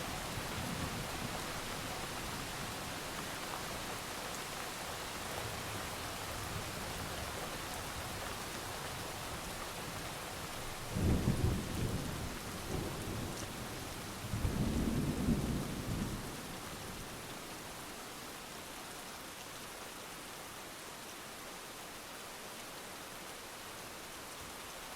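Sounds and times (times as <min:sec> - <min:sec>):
heavy rain: 0:00.0 - 0:24.9
low rolls of thunder: 0:10.9 - 0:16.9.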